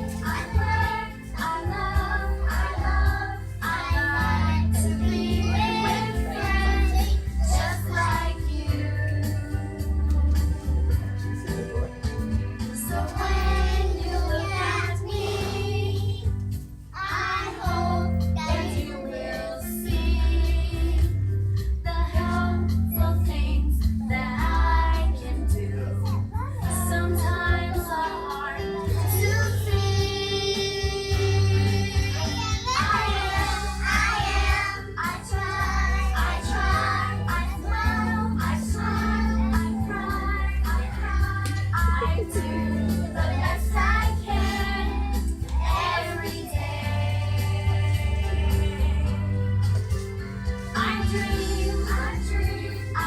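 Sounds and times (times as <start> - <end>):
children singing: 0.0 - 10.8, 12.8 - 16.3, 17.0 - 21.0, 24.1 - 49.2, 50.7 - 53.0
instrumental backing music: 0.0 - 53.0.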